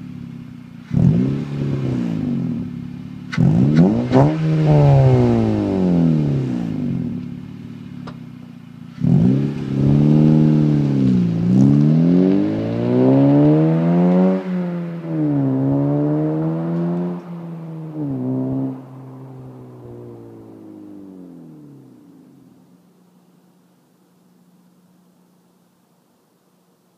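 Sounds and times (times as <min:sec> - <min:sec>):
car engine revving: 0:00.0 - 0:23.5.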